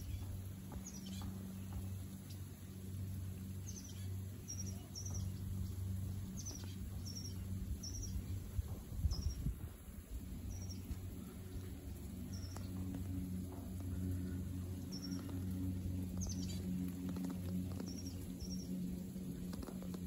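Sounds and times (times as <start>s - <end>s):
low hum: 0.0s - 20.0s
bird chirping: 3.6s - 8.4s, 13.9s - 18.9s.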